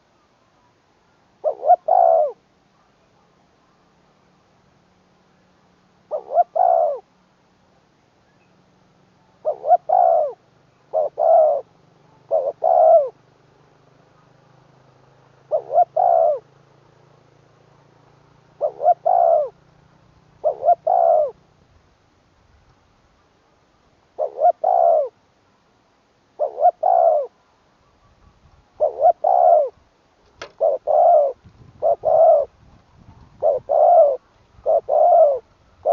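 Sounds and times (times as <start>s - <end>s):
dove cooing: 1.4s - 2.4s, 6.1s - 7.1s, 9.4s - 13.2s, 15.4s - 16.6s, 18.5s - 19.6s, 20.4s - 21.4s, 24.1s - 25.2s, 26.4s - 29.8s, 30.4s - 35.9s.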